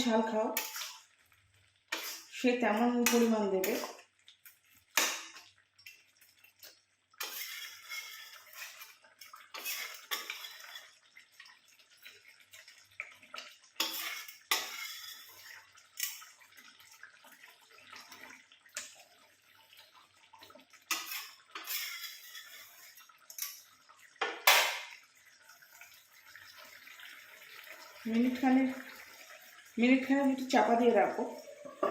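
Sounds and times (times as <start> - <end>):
spatula scraping cooking pan: 0.0 - 1.1, 1.8 - 19.1, 20.7 - 24.9, 30.5 - 31.9.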